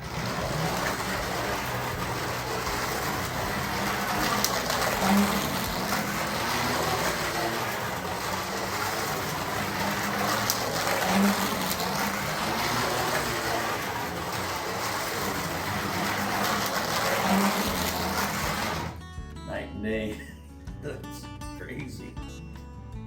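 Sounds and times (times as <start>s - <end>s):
slot car motor whir: 0.0s - 19.0s
wheels rattling on plastic track: 0.0s - 19.0s.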